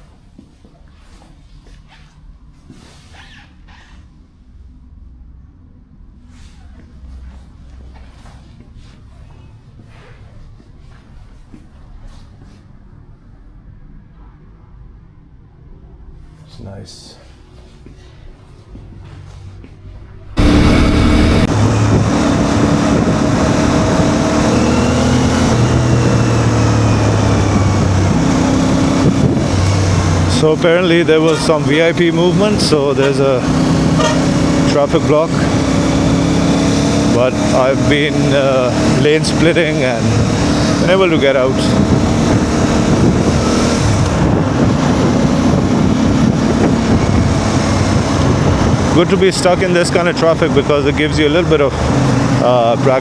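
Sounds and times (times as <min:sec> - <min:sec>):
heavy road traffic: 0:17.6 - 0:53.0
motorcycle engine running: 0:20.1 - 0:53.0
wind buffeting microphone: 0:20.2 - 0:34.4, 0:41.5 - 0:50.7.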